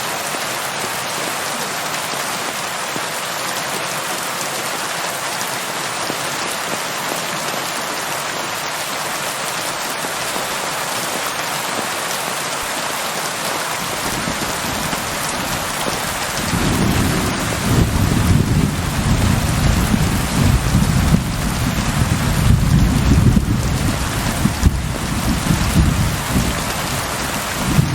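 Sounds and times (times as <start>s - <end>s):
steady rain falling: 0.0s - 27.9s
thunder rumbling: 13.8s - 27.9s.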